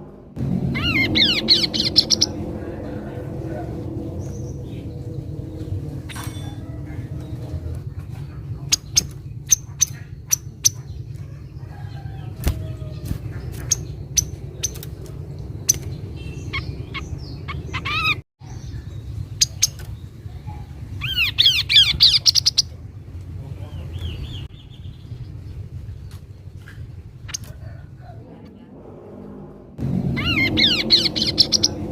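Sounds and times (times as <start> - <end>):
steady low rumble: 0.0 - 31.9
bird calling: 0.7 - 22.9, 30.1 - 31.9.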